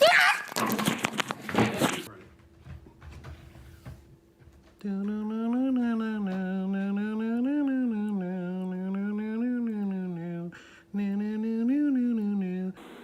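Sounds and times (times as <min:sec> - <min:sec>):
person humming: 0:04.8 - 0:13.0.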